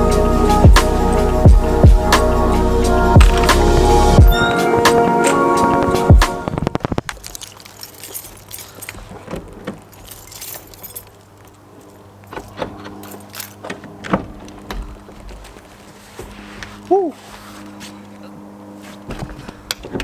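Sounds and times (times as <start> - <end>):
steady drone: 0.0 - 6.8.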